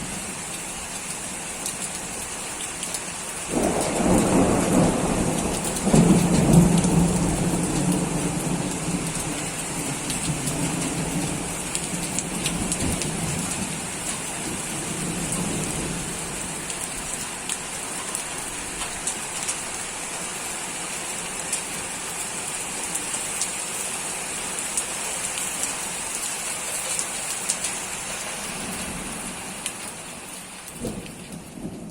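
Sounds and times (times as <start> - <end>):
rain falling steadily: 0.0 - 31.9
low rumble of thunder: 3.5 - 17.2, 30.7 - 31.9.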